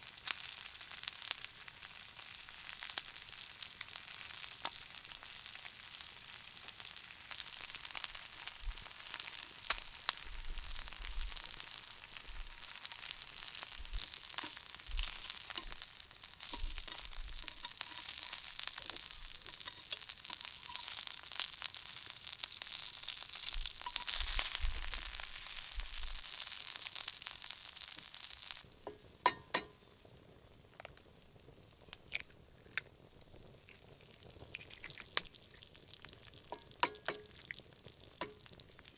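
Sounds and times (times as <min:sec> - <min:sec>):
food sizzling in pan: 0:00.0 - 0:38.9
scattered clicks and pops: 0:08.5 - 0:20.1, 0:30.6 - 0:38.9.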